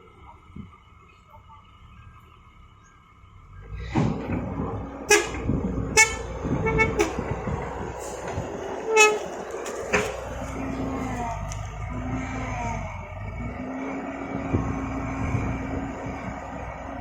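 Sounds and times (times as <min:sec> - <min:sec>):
heavy vehicle engine running: 0:00.0 - 0:17.0
short horn toots: 0:05.1 - 0:07.4, 0:08.9 - 0:10.2.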